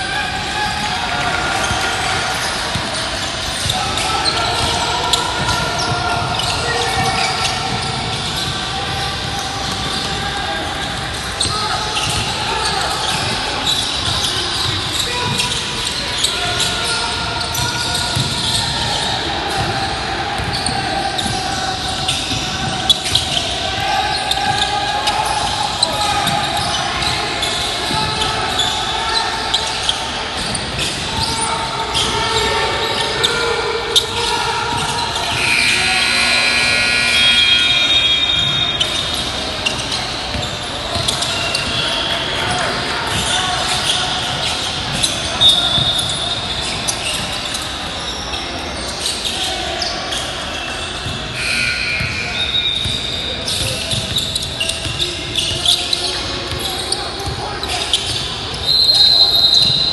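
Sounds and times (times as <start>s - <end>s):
shoe squeaks: 0.0s - 19.7s, 20.3s - 59.9s
players' voices echoing: 0.0s - 59.9s
basketball bouncing on court: 3.6s - 10.2s, 17.5s - 18.6s, 20.4s - 21.4s, 52.8s - 56.6s.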